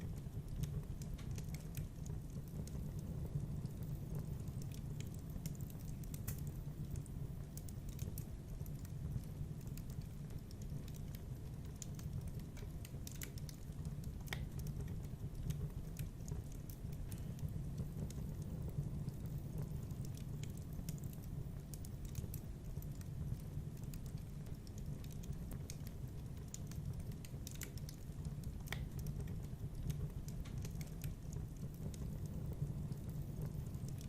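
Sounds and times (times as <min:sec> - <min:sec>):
fire crackling and popping: 0:00.0 - 0:34.0
low rumble of flames: 0:00.0 - 0:34.0.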